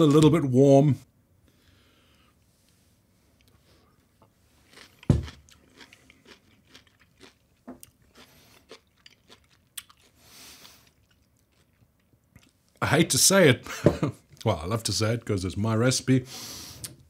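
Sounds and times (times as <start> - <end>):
chewing crunches: 4.6 - 12.8.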